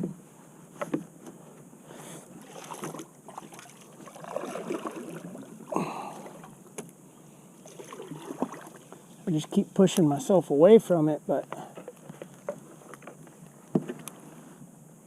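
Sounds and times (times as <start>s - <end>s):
kayak knocks and scrapes: 0.0s - 1.7s, 2.4s - 5.2s, 11.6s - 14.3s
water moving around a hull: 0.6s - 10.3s, 11.4s - 14.7s
water swish: 2.4s - 6.6s, 7.6s - 9.2s.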